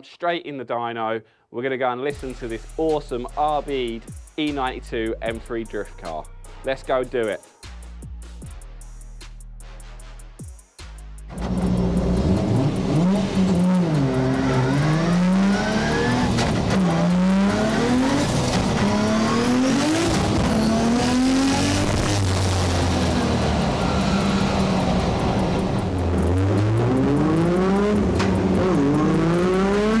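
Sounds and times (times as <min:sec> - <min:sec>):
car engine revving hard: 0:11.3 - 0:30.0.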